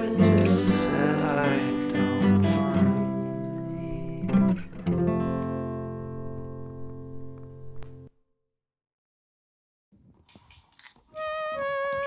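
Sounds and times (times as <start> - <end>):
acoustic guitar strumming: 0.0 - 8.1.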